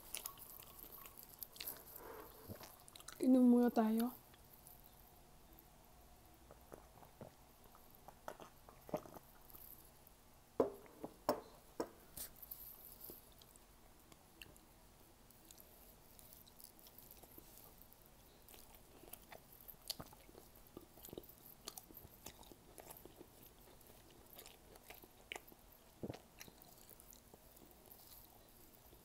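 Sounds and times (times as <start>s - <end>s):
person chewing squid: 0.0s - 3.2s, 6.5s - 9.6s, 15.4s - 29.0s.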